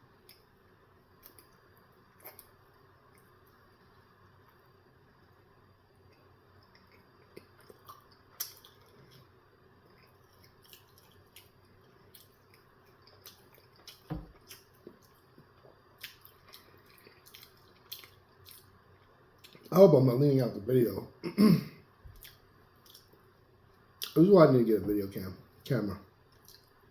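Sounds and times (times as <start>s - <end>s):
person chewing food: 1.2s - 3.5s, 6.1s - 19.7s, 22.1s - 23.3s, 26.3s - 26.8s.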